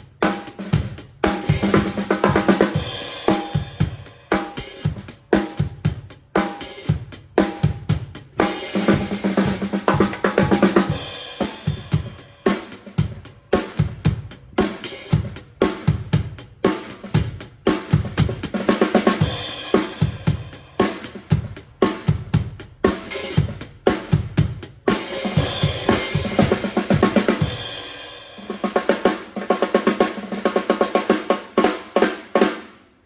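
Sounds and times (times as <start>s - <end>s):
cymbals: 0.0s - 30.3s
acoustic drum kit groove: 0.0s - 33.0s
bass drum: 13.8s - 28.5s.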